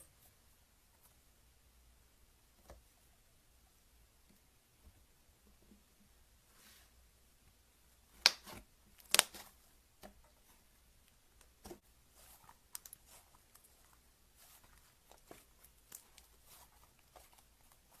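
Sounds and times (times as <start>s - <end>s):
slime popping: 8.2s - 9.5s.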